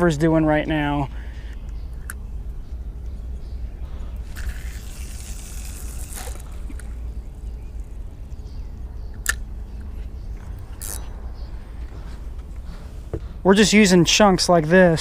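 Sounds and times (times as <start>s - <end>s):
steady low rumble: 0.0s - 15.0s
sharp clicks: 9.1s - 9.9s.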